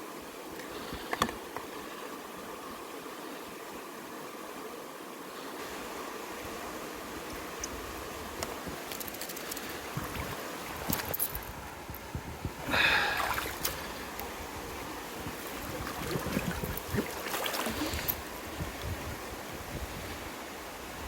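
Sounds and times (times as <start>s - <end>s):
river water rushing: 12.6s - 18.7s
knocks and splashes: 13.0s - 13.8s, 15.4s - 18.2s.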